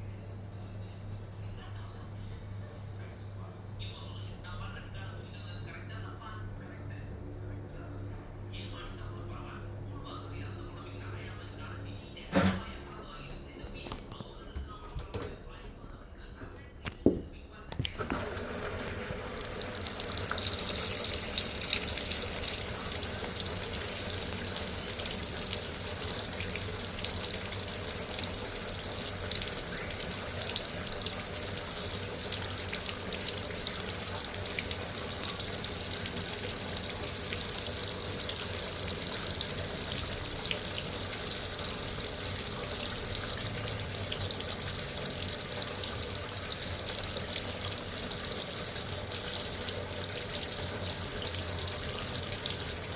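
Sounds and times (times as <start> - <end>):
water running into washing machine: 12.3 - 12.7, 14.9 - 15.7, 18.0 - 52.9.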